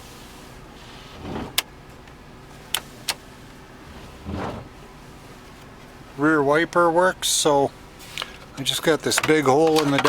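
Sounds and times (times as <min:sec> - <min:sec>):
wiper motor whirring: 0:00.7 - 0:05.7
dashboard switches clicking: 0:01.5 - 0:03.2.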